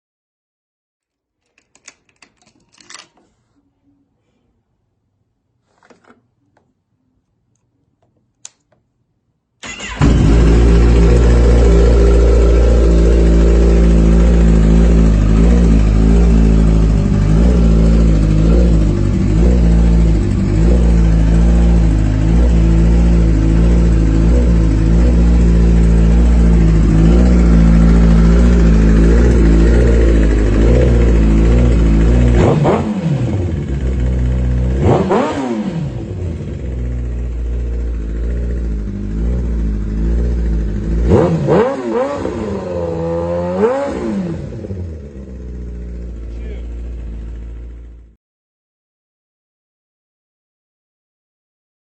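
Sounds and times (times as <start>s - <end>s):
motorcycle engine idling: 9.6s - 32.4s, 33.3s - 34.8s, 36.0s - 41.3s, 44.6s - 48.1s
motorcycle engine revving: 9.6s - 48.2s.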